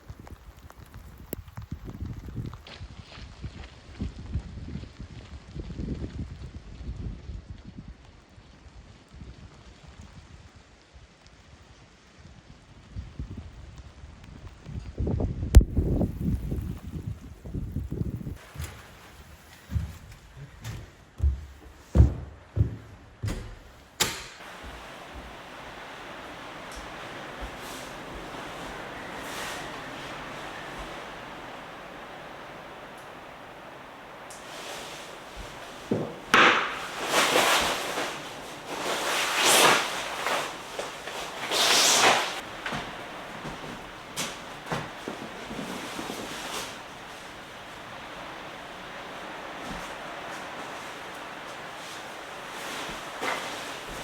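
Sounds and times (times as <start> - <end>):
storm wind rushing: 15.5 - 19.4, 24.4 - 54.0.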